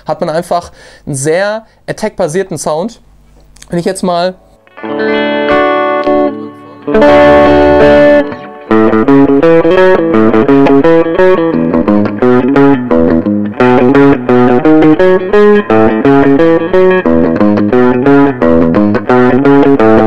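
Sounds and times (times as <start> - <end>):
electric guitar playing: 4.4 - 20.0.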